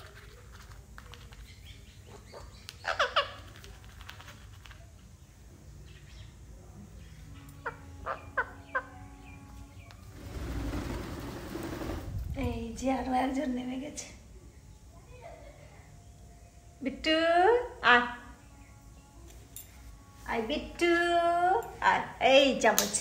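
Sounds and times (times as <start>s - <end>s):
parakeets squawking: 7.6s - 10.0s.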